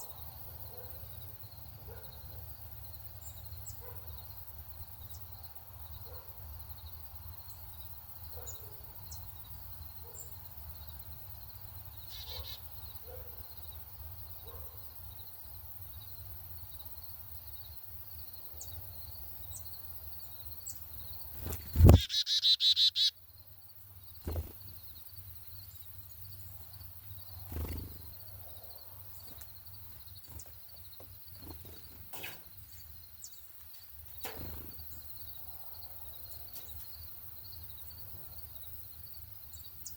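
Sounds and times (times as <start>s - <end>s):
small songbirds chirping: 0.0s - 39.9s
rapid burst of close chirping: 20.3s - 23.3s, 24.1s - 28.6s.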